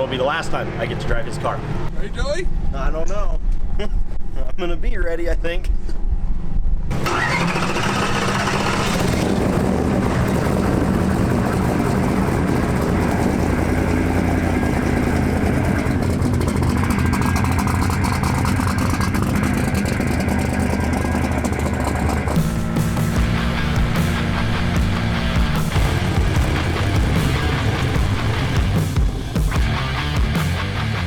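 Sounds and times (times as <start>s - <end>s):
drag car engine running: 6.9s - 31.0s
falling whine: 6.9s - 31.0s.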